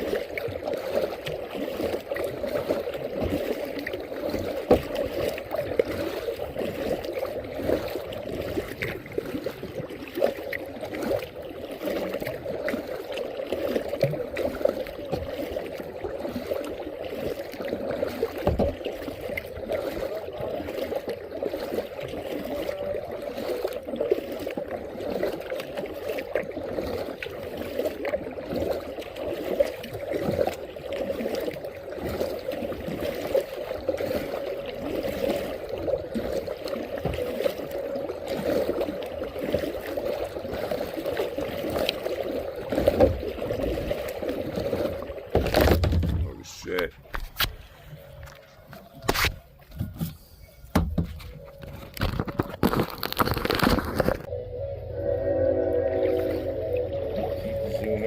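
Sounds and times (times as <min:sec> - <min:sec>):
water lapping around kayak: 0:00.0 - 0:58.0.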